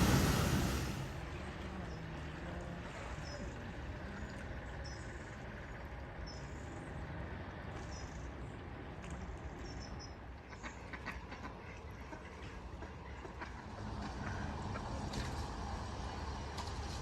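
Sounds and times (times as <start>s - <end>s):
low rumble: 0.0s - 1.5s.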